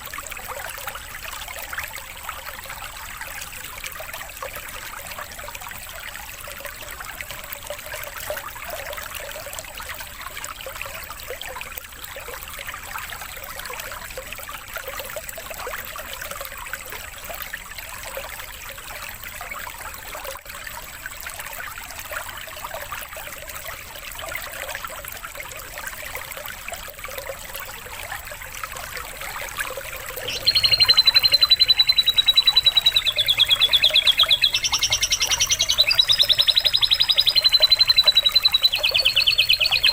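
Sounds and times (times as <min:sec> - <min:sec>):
water trickling: 0:00.0 - 0:39.9
rapid bird trill: 0:30.2 - 0:39.9.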